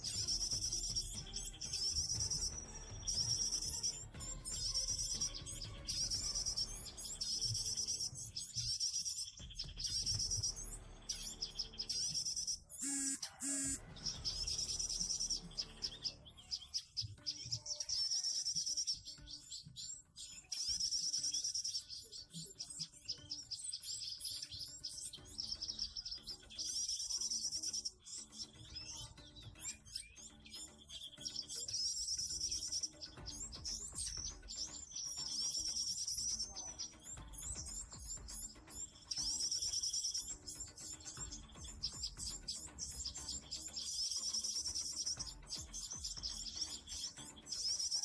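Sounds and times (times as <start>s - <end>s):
small bird trilling: 11.9s - 13.9s
loud bird call: 12.7s - 14.2s.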